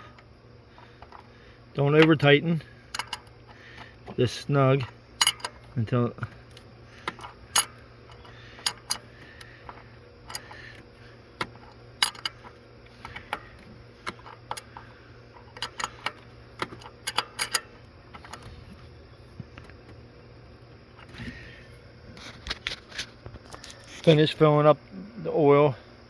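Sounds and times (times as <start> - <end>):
wrench clicking on metal: 1.9 - 3.6, 4.8 - 5.7, 6.5 - 9.1, 9.7 - 10.8, 11.4 - 18.4.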